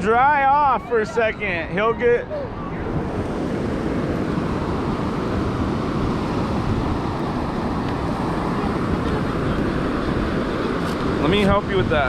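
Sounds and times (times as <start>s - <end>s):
ocean surf breaking: 0.0s - 12.0s
wind rumble on microphone: 1.3s - 12.0s.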